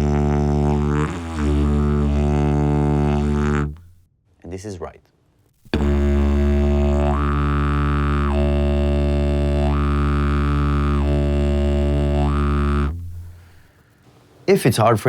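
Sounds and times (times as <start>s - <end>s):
didgeridoo drone: 0.0s - 3.8s, 5.7s - 13.4s.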